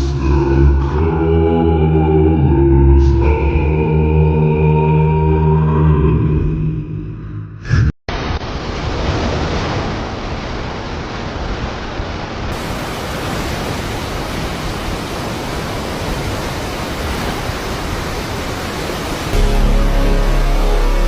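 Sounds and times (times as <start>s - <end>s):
wind: 8.1s - 19.4s
surf rushing: 8.1s - 21.0s.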